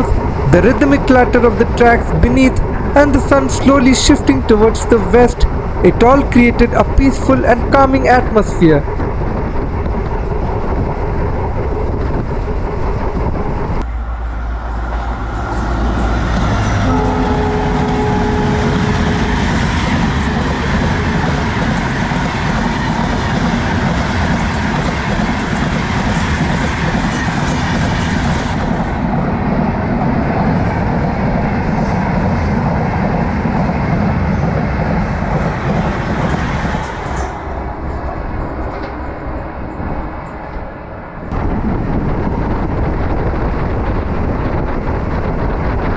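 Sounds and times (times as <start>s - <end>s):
train wheels clattering over rails: 14.8s - 40.6s.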